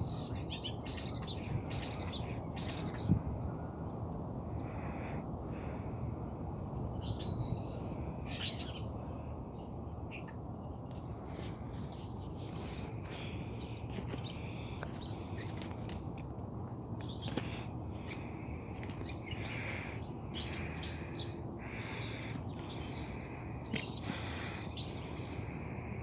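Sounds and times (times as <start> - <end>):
birds chirping: 0.0 - 3.7, 6.7 - 11.1, 13.0 - 16.0, 17.0 - 26.0.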